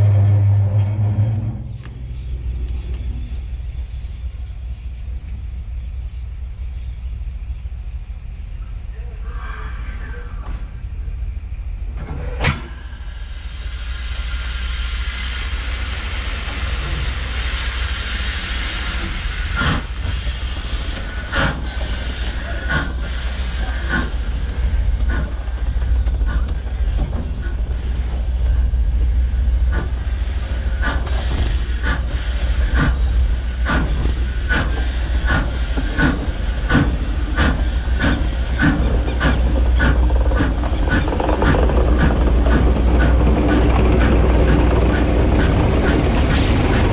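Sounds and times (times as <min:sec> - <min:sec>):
deep train rumble: 0:00.0 - 0:46.9
long hiss: 0:12.8 - 0:21.2
high wheel squeals: 0:27.3 - 0:29.9
wheels clicking over rail joints: 0:33.6 - 0:46.9.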